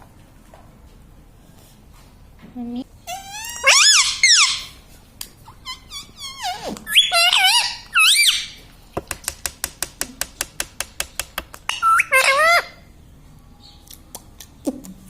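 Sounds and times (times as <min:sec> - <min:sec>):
parrot squawking: 0:03.1 - 0:08.6, 0:11.6 - 0:12.9
fast sharp clicks: 0:09.0 - 0:11.8.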